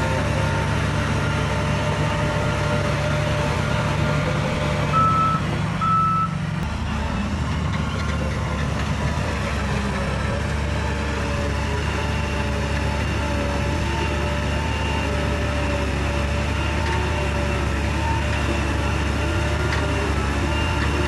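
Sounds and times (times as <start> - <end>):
heavy diesel machinery rumbling: 0.0 - 21.0
reversing alarm beeps: 4.9 - 6.4.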